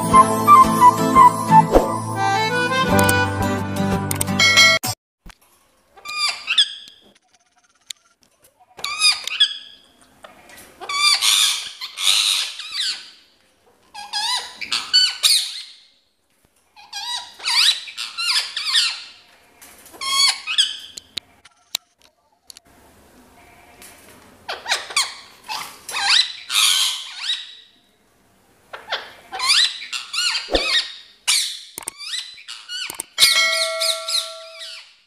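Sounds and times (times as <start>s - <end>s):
parakeet squawking: 28.9s - 32.2s.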